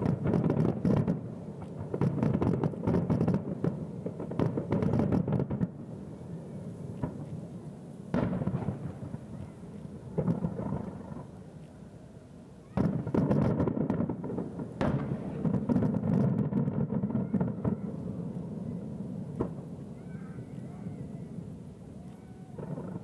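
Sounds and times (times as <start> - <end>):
distant firework booms: 0.0 - 5.8, 8.1 - 11.4, 12.7 - 20.4, 22.6 - 23.0.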